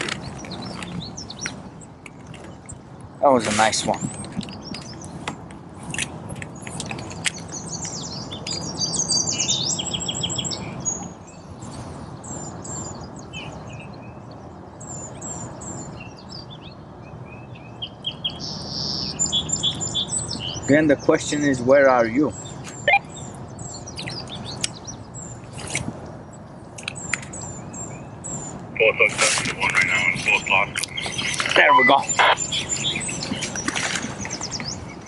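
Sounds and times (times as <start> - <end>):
songbirds singing and chirping: 0.0 - 35.0
steady low background noise: 26.2 - 35.0.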